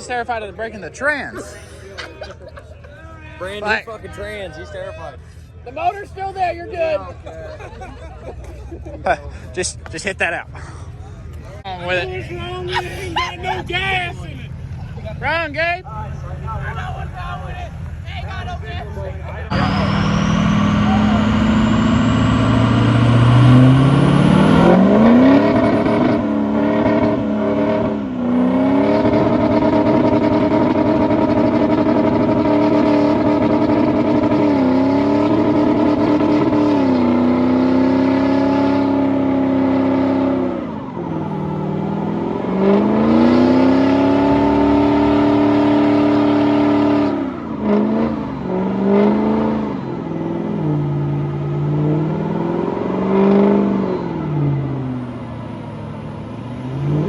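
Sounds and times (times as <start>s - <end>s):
engine revving at high revs: 19.5s - 55.0s, 56.5s - 57.0s.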